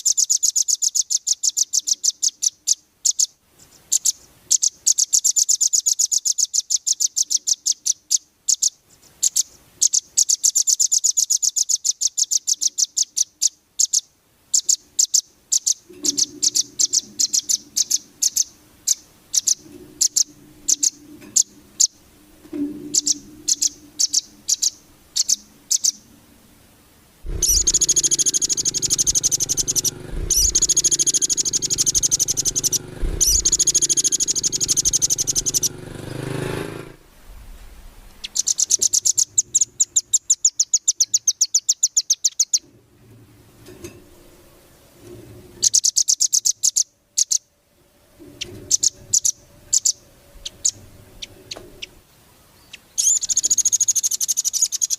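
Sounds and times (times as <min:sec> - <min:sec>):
bird chipping calls: 0:00.0 - 0:03.3, 0:14.6 - 0:22.0, 0:22.9 - 0:26.1, 0:27.2 - 0:37.0, 0:38.2 - 0:42.6, 0:48.4 - 0:52.0, 0:52.6 - 0:54.9
bird rattling trills: 0:14.6 - 0:26.1, 0:27.2 - 0:37.0, 0:38.2 - 0:42.7, 0:45.1 - 0:47.4, 0:48.2 - 0:52.0, 0:52.7 - 0:54.9.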